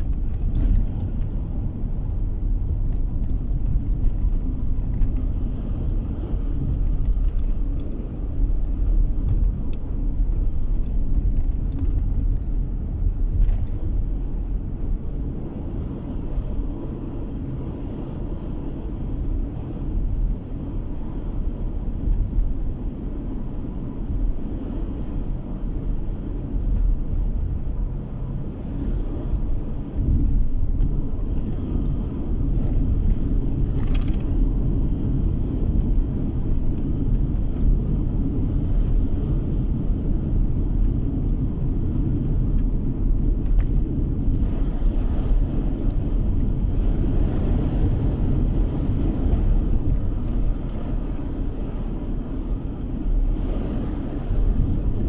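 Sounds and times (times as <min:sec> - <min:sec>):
car road and engine noise: 0:00.0 - 0:55.0.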